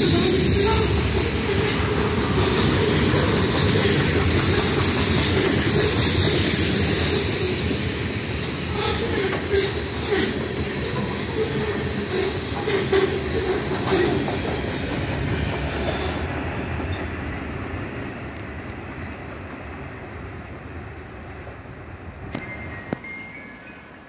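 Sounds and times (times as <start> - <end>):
freight train rolling past: 0.0 - 24.0
wheels clicking over rail joints: 0.7 - 6.8.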